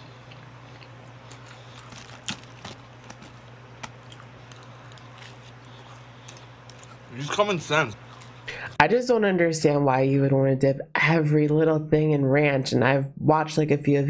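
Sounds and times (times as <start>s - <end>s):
steady low hum: 0.0s - 11.2s
chewing and biting: 0.1s - 7.4s, 8.0s - 8.5s.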